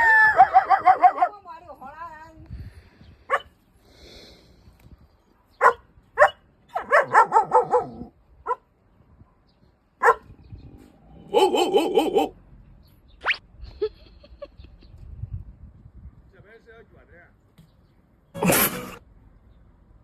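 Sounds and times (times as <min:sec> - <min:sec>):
dog barking: 0:03.3 - 0:03.5, 0:05.5 - 0:08.6, 0:10.0 - 0:10.3.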